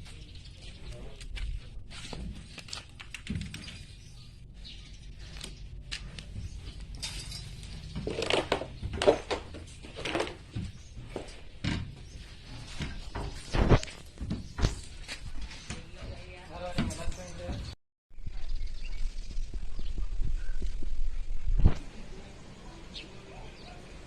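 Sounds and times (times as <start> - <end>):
knocking and scraping from hand work: 7.2 - 17.8.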